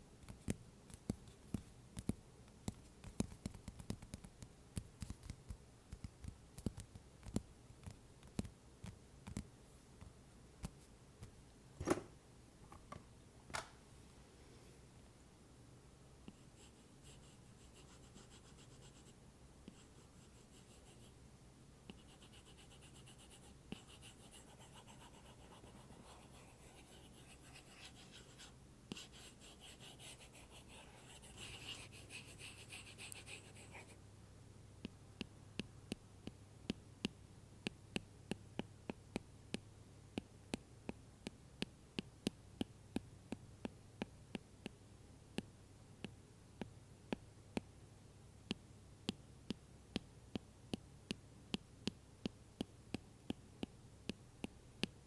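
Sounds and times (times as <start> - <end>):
stylus scratching on tablet cover: 21.9 - 34.0.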